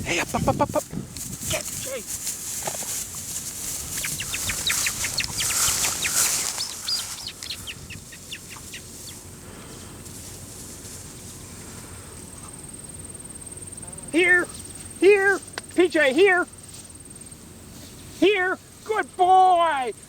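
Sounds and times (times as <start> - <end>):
hissing rush: 3.0 - 10.0
bird chirping: 3.6 - 9.4.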